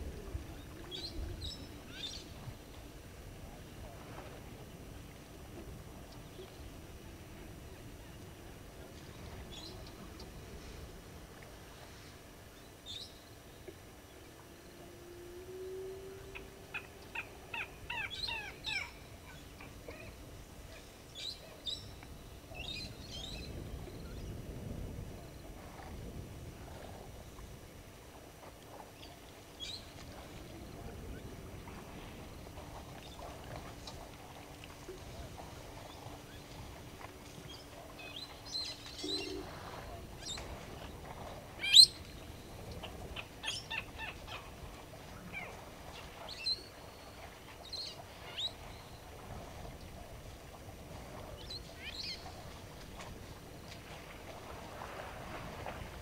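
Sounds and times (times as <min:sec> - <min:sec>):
wild birds chirping: 0:12.6 - 0:22.0, 0:35.4 - 0:49.2.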